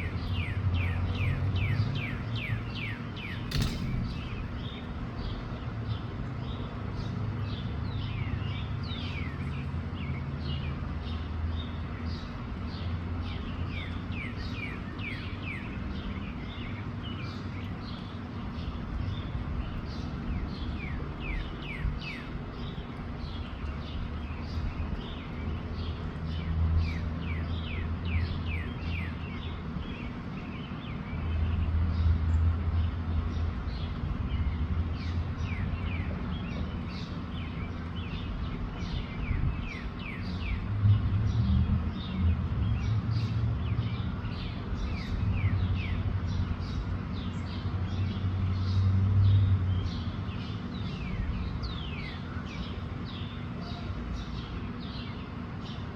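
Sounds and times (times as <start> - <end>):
small birds chirping: 0.1 - 41.1, 41.8 - 55.9
low rumble: 3.5 - 5.2.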